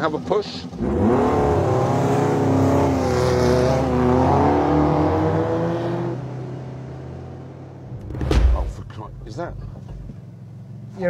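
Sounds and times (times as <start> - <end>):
buggy engine revving: 0.0 - 11.0.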